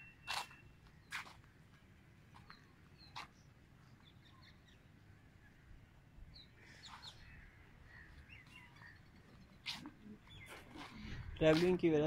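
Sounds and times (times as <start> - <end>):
bird chirps: 6.3 - 11.3.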